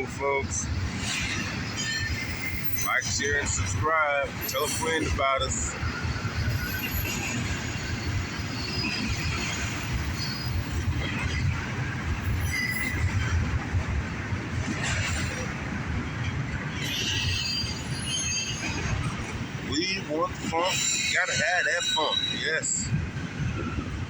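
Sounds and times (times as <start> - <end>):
freight train rumbling past: 0.0 - 24.0
wheel squeals: 1.0 - 3.6, 4.4 - 11.6, 12.2 - 13.4, 16.8 - 19.3, 20.4 - 22.9.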